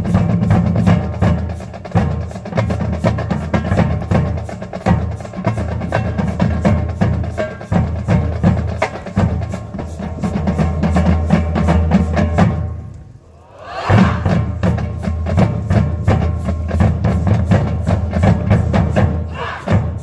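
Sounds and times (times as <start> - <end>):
marching band playing: 13.7 - 20.0
sharp drum hits: 13.8 - 14.7.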